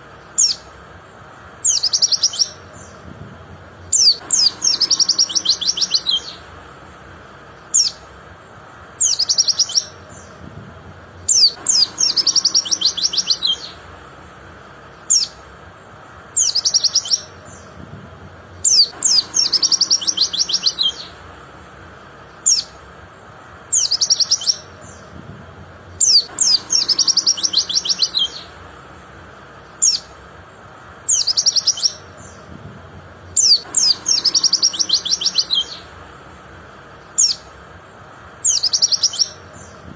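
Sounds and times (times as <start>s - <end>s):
bird trilling song: 0.0s - 6.7s, 7.5s - 8.2s, 8.8s - 14.0s, 14.8s - 21.3s, 22.2s - 25.3s, 25.9s - 28.7s, 29.5s - 36.1s, 37.0s - 37.6s, 38.2s - 39.9s
single bird chirps: 7.7s - 8.0s.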